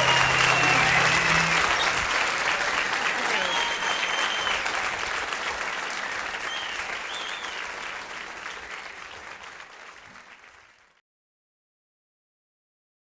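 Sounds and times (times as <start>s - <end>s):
whoops: 0.0s - 4.9s
audience applause: 0.0s - 11.0s.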